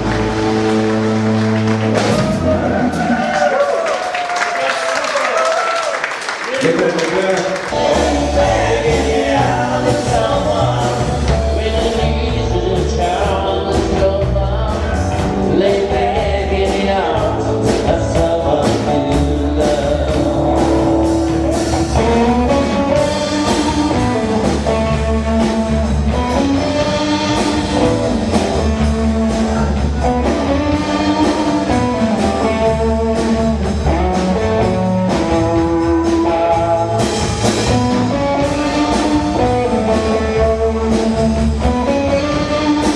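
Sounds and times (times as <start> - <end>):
live rock band playing: 0.0 - 4.6, 5.4 - 42.9
person singing: 7.7 - 21.2.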